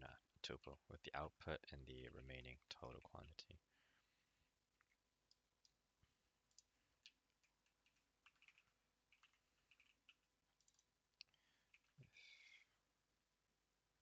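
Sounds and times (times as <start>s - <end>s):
computer keyboard typing: 7.3s - 10.9s, 11.6s - 12.0s.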